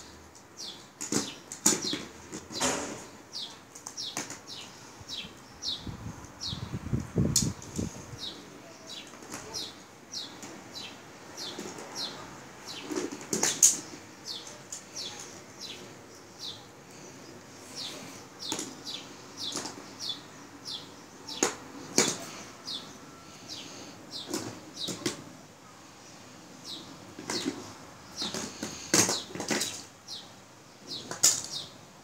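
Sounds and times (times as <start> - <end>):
small bird chirping: 3.3 - 25.0.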